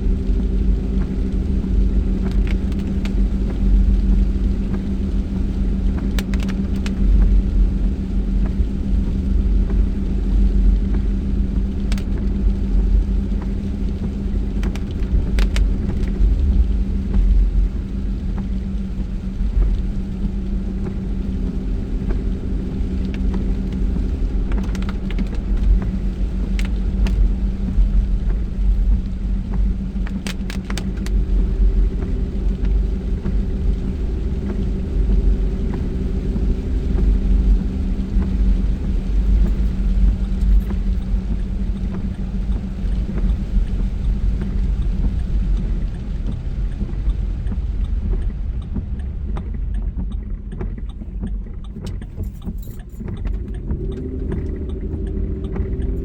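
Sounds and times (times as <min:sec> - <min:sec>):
car interior road rumble: 0:00.0 - 0:56.0.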